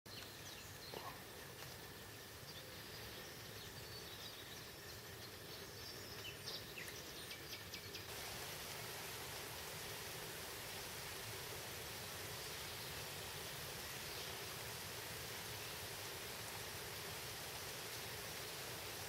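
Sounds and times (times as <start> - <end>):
faint bird chirps: 0.1 - 8.1
steady outdoor hiss: 0.1 - 19.0.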